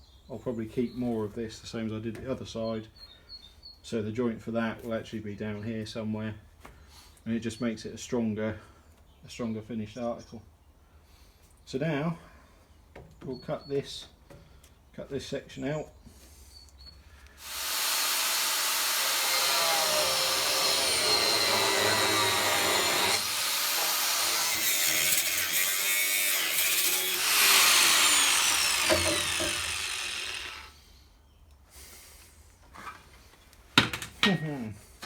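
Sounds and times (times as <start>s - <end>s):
power tool cutting steel: 17.4s - 30.8s.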